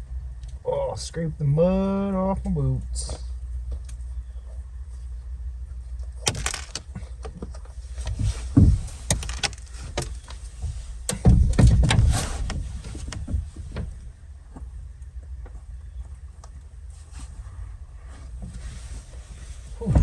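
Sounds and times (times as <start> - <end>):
truck door clicks and rattles: 6.2 - 7.4, 8.1 - 10.4, 11.1 - 13.9
heavy thumps: 6.3 - 6.9.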